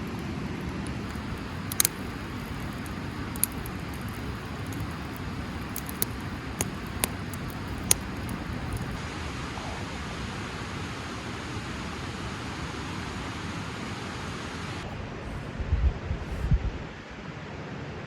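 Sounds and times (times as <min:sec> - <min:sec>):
raindrops ticking: 0:00.0 - 0:09.0
low background rumble: 0:00.0 - 0:10.3.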